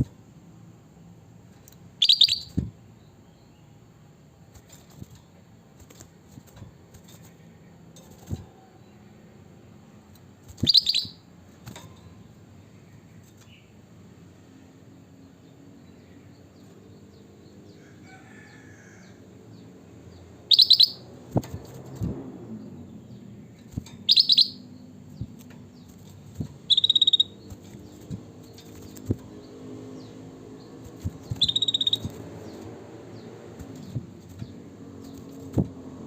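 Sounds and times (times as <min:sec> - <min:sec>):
bird calls: 0:02.0 - 0:03.6, 0:10.5 - 0:11.2, 0:20.4 - 0:21.8, 0:23.1 - 0:35.7.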